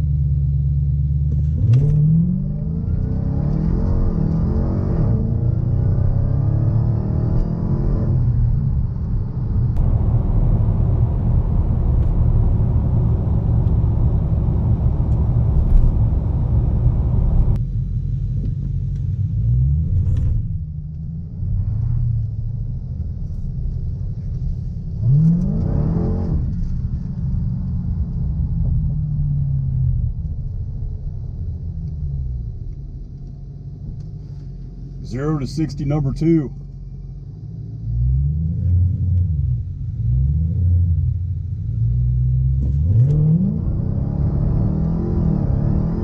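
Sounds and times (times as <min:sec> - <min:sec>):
car engine accelerating hard: 0:01.3 - 0:08.9, 0:09.7 - 0:17.6, 0:24.2 - 0:32.0, 0:37.6 - 0:46.0
engine revving: 0:01.6 - 0:08.3, 0:25.0 - 0:26.7, 0:42.2 - 0:46.0.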